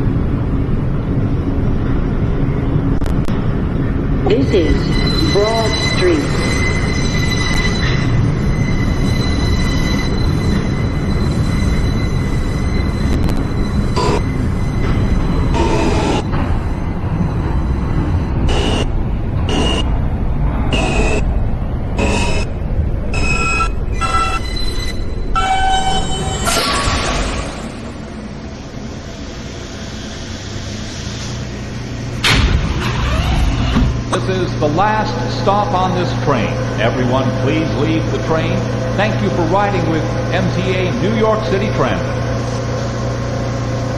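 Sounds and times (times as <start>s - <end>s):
steady tone: 0.0s - 43.9s
train wheels rumbling on rail: 0.0s - 43.9s
thin high whine: 2.5s - 43.9s
sudden loud burst of noise: 29.0s - 35.2s.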